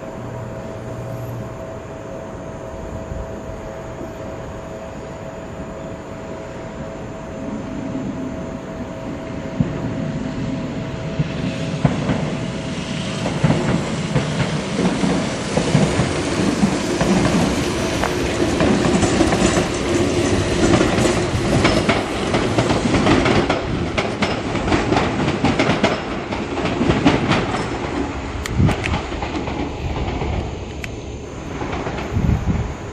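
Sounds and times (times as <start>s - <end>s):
electric train running past: 0.0s - 32.9s
train wheels clattering over rail joints: 11.1s - 32.9s.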